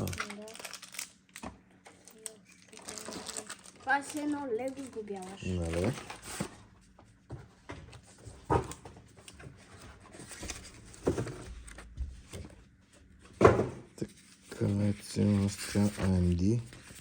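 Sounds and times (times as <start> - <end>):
packaging rustling: 0.0 - 6.6.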